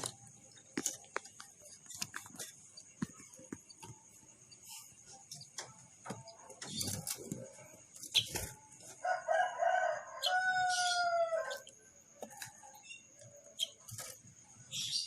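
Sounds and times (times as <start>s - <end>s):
faint high chirps: 3.7s - 15.0s
rooster crowing: 9.0s - 11.7s.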